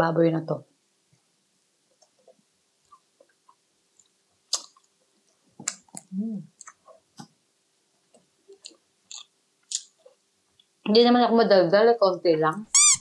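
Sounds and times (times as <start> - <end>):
lip smacks: 2.0 - 4.9, 5.6 - 7.4, 8.1 - 10.7
chewing with wet mouth clicks: 5.6 - 7.3, 8.1 - 10.7
person humming: 6.1 - 6.5.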